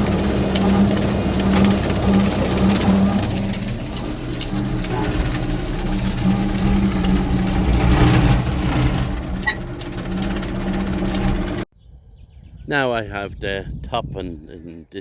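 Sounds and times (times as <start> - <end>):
tractor engine running: 0.0 - 11.7.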